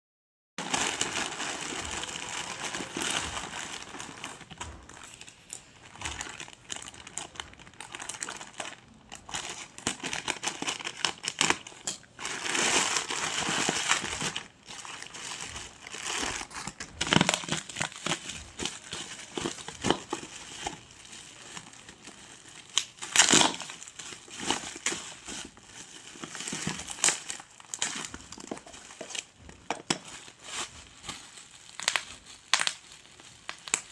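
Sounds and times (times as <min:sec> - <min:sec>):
packaging crinkling and rustling: 0:00.6 - 0:33.9.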